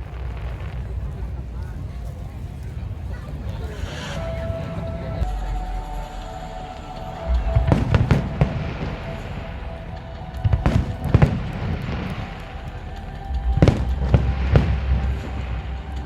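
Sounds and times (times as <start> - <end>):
fireworks bangs: 0.0 - 16.0
music playing: 3.7 - 16.0.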